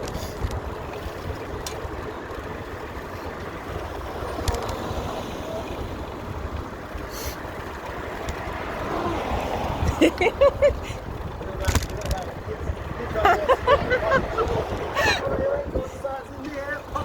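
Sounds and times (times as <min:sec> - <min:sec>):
wind rumble on microphone: 0:07.7 - 0:17.0.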